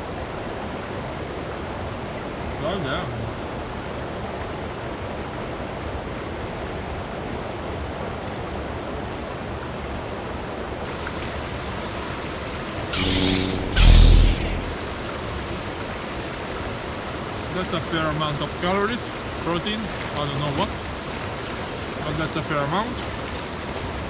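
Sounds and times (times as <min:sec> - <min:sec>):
river water rushing: 0:10.8 - 0:13.8, 0:14.6 - 0:24.0
brief burst of noise: 0:12.9 - 0:15.2.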